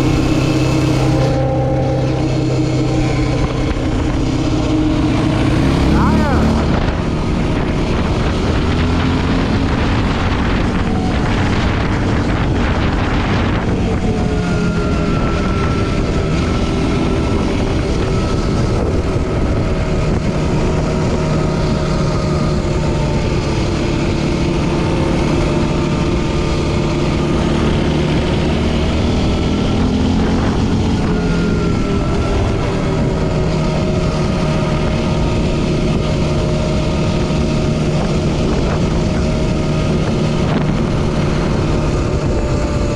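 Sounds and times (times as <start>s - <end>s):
quad bike engine revving: 0.0s - 42.9s.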